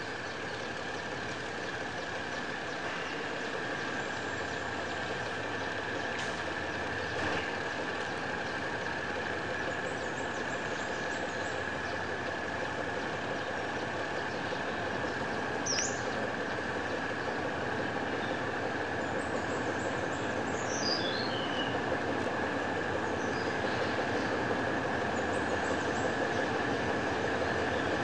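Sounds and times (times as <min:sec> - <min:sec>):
diesel locomotive engines running: 0:00.0 - 0:28.0.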